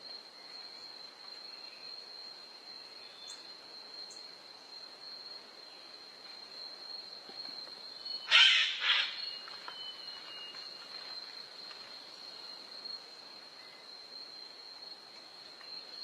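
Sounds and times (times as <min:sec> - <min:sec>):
insects trilling: 0:00.0 - 0:16.0
bird harsh two-part call: 0:08.3 - 0:09.2.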